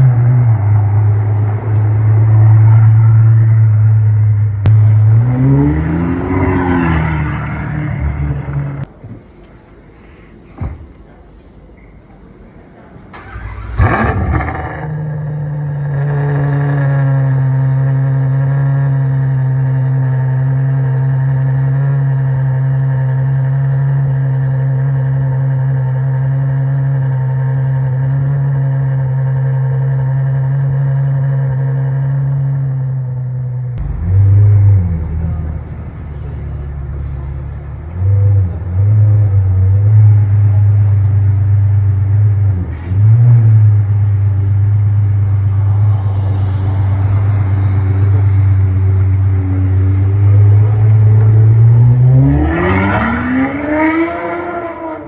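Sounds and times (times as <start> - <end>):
sports car engine revving: 4.6 - 8.9, 13.2 - 27.4, 33.8 - 55.0
sports car engine idling: 4.6 - 12.2, 13.0 - 52.9.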